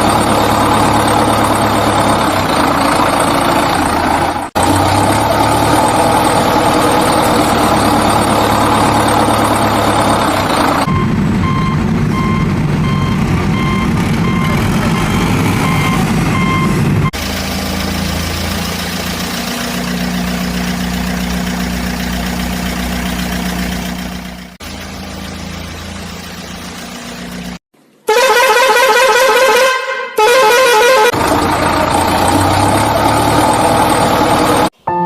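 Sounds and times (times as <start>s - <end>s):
engine running: 0.0s - 27.6s, 31.0s - 34.8s
vehicle reversing beeper: 10.7s - 17.2s.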